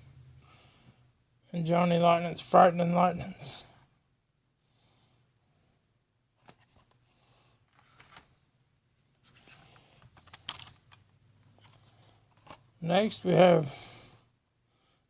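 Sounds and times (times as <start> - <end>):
plastic rustling: 9.2 - 12.8.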